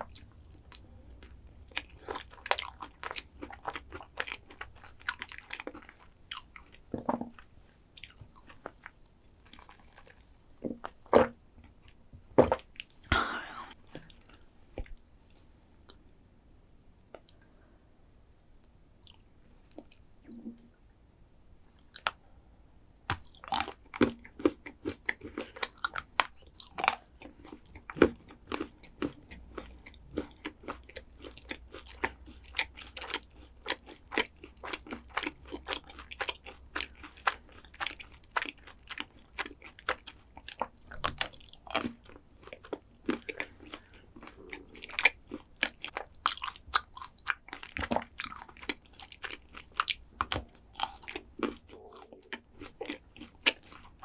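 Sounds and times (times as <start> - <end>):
crunchy chewing: 0.0 - 6.8, 8.0 - 8.8, 23.1 - 54.0.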